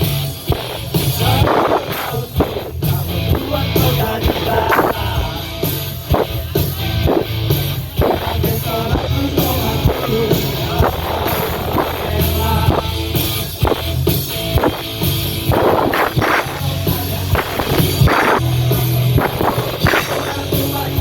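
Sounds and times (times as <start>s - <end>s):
drum kit beat: 0.0s - 21.0s
rock band playing live: 0.0s - 21.0s
person singing: 1.0s - 6.8s, 8.0s - 13.2s, 16.0s - 21.0s.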